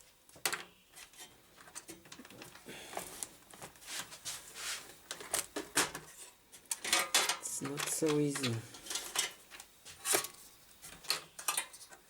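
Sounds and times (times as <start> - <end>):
small tools clicking and tapping: 5.1 - 10.3, 10.9 - 12.0.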